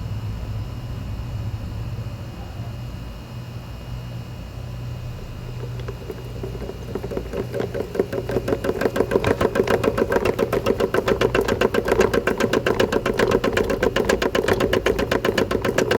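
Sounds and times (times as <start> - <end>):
washing machine running: 3.6 - 15.9
fast even knocking: 5.4 - 15.9.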